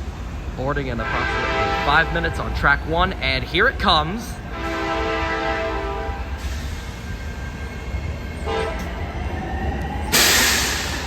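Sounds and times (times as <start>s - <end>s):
train low rumble: 0.0s - 11.0s
locomotive horn: 0.9s - 6.4s, 8.4s - 9.0s
loud hissing rush: 10.1s - 11.0s.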